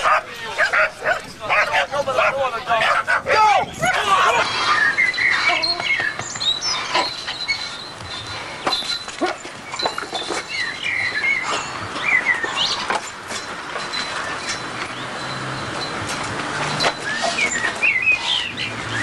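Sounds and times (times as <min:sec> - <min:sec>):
bird chirps: 0:04.5 - 0:13.2, 0:16.7 - 0:19.0.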